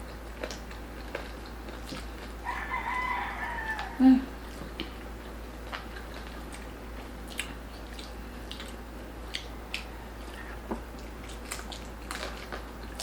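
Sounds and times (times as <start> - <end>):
chewing crispy food: 0.0 - 13.0.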